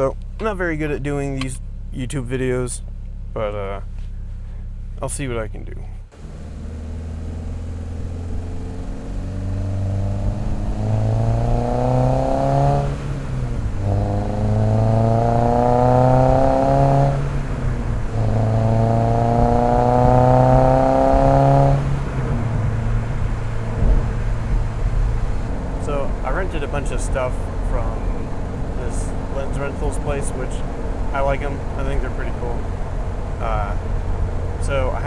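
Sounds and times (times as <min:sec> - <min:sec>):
car engine accelerating: 0:00.0 - 0:35.0.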